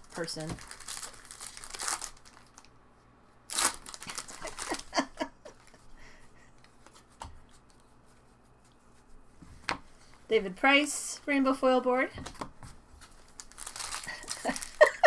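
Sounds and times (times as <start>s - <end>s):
foil wrapper ripping and crinkling: 0.0s - 2.7s, 3.5s - 5.2s, 13.0s - 15.0s.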